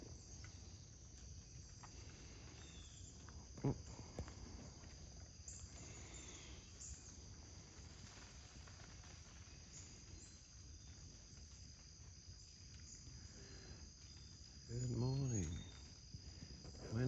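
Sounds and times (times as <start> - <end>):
faint chirps: 0.0 - 7.9, 12.4 - 17.0
high-pitched insect chorus: 0.0 - 17.0.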